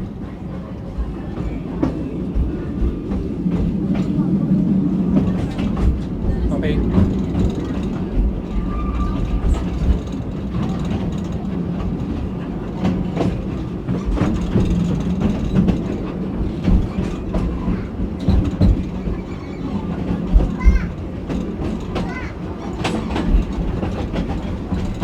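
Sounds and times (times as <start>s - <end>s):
railway carriage rumble: 0.0s - 25.0s
wheels clicking over rail joints: 5.1s - 25.0s.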